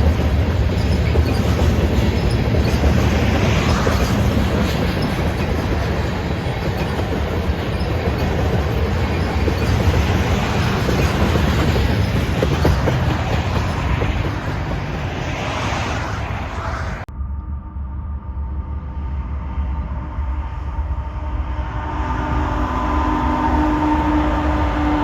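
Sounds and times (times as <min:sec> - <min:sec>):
freight train wheels clattering: 0:00.0 - 0:17.0.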